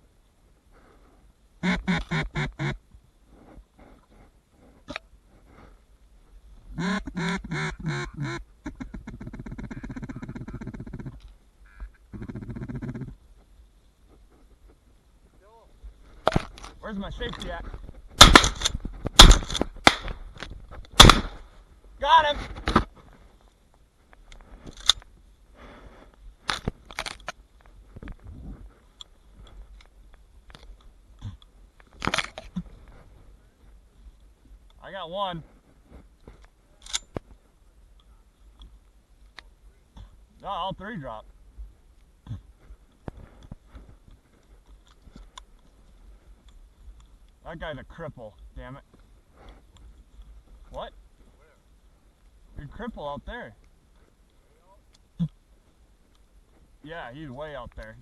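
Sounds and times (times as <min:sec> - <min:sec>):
duck call quacking: 0:01.6 - 0:02.8, 0:06.8 - 0:13.1.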